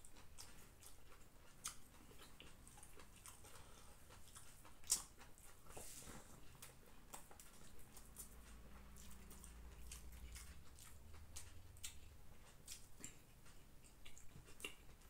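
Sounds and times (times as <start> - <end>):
faint chewing with wet clicks: 0.0 - 15.0.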